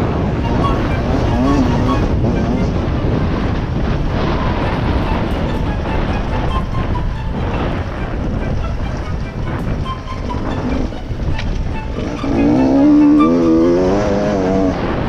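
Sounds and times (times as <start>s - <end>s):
dirt bike engine revving: 0.0s - 5.6s, 11.9s - 15.0s
wind noise: 0.0s - 15.0s.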